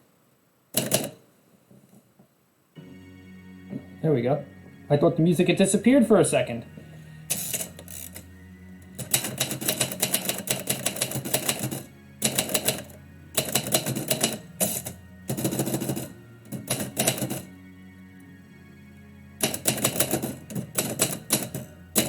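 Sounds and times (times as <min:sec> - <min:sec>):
typewriter typing: 0:00.8 - 0:01.2, 0:07.3 - 0:08.2, 0:09.0 - 0:17.5, 0:19.4 - 0:22.0.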